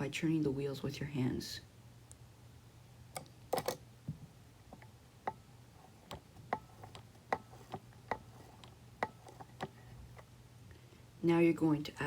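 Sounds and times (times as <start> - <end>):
toy train clicking and tapping: 5.9 - 10.2.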